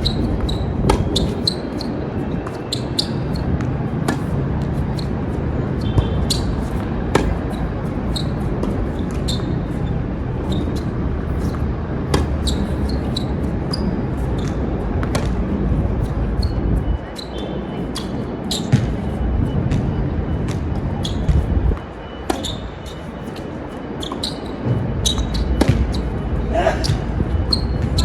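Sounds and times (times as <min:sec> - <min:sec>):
tennis balls hit by rackets: 0:00.0 - 0:09.5, 0:12.0 - 0:13.8, 0:14.4 - 0:15.5, 0:22.2 - 0:22.7, 0:24.1 - 0:26.2
balls bouncing on hard court: 0:00.0 - 0:09.8, 0:10.5 - 0:16.6, 0:18.0 - 0:22.6, 0:23.3 - 0:28.0
wind on microphone: 0:00.0 - 0:12.4, 0:19.0 - 0:22.0, 0:24.7 - 0:28.0
shoe squeaks: 0:00.0 - 0:28.0.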